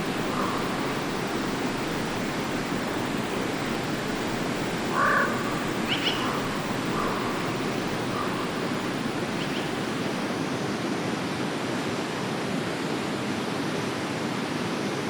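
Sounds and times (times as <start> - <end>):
stream flowing: 0.0 - 15.0.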